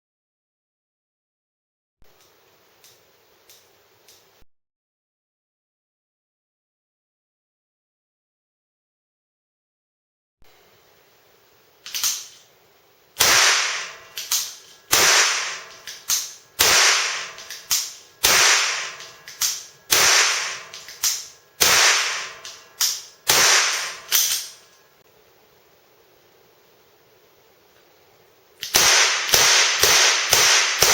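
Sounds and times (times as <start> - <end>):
cap gun shots: 13.2 - 24.6, 28.6 - 30.9.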